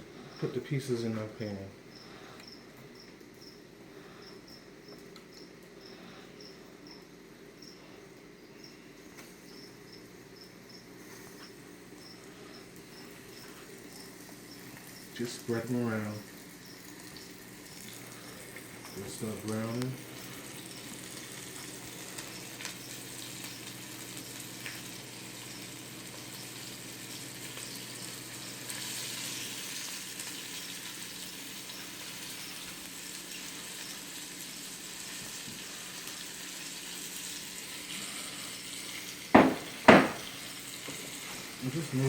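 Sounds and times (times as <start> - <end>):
chicken sizzling in hot oil: 12.8 - 42.0
loud sharp knocks: 39.4 - 40.3.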